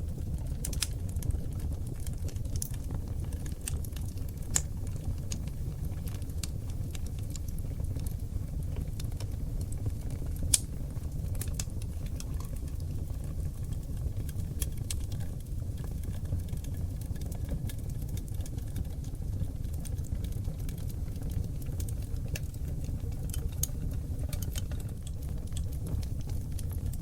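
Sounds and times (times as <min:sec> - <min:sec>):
low rumble of flames: 0:00.0 - 0:27.0
fire pops and clicks: 0:00.2 - 0:27.0.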